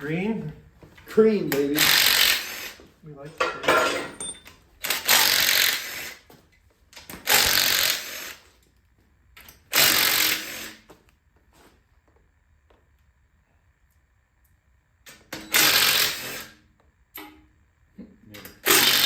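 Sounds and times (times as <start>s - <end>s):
handheld power tool bursts: 1.6s - 2.8s, 3.6s - 6.3s, 7.0s - 8.5s, 9.4s - 10.9s, 15.1s - 16.6s, 18.5s - 19.0s.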